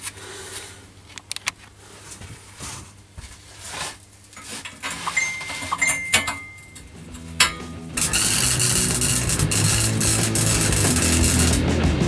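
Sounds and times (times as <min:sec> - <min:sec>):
steel tubing clinking: 0:04.4 - 0:11.6
brief high tone: 0:05.1 - 0:06.8.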